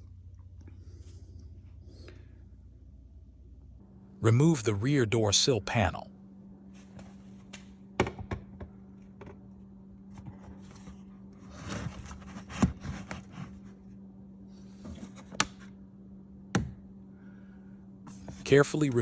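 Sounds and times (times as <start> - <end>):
plastic scraping and rubbing: 10.2 - 13.7.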